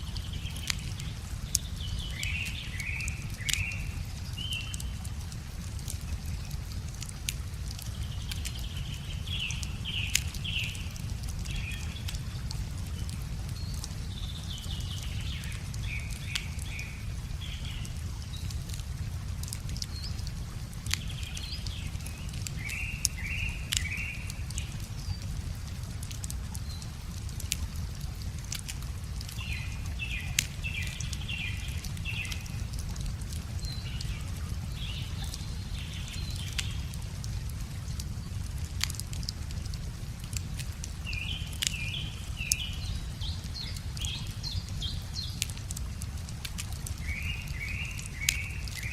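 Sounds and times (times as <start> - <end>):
songbird singing: 0.0 - 5.1, 7.6 - 18.8, 19.7 - 25.4, 29.3 - 37.1, 41.0 - 45.6, 46.9 - 48.9
wood fire crackling: 0.0 - 48.9.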